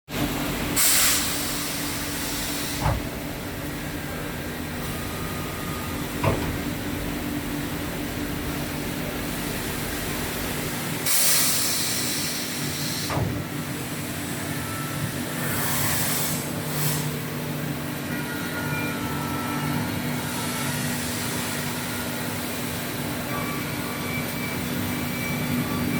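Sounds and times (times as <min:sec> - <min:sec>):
air hiss bursts: 0:00.8 - 0:03.0, 0:11.0 - 0:13.2, 0:15.4 - 0:17.1.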